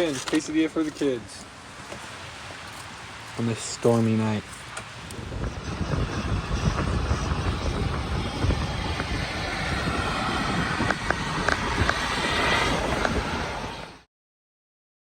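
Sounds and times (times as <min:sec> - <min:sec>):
rain ticking on camper: 0:00.0 - 0:05.3
storm wind rushing: 0:04.4 - 0:14.1.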